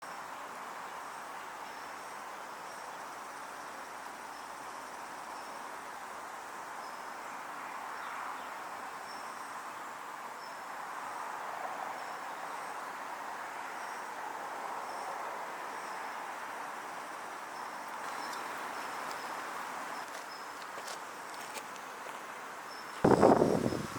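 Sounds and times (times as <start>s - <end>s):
insects chirping: 0.0s - 23.9s
steady rushing noise: 22.9s - 23.9s.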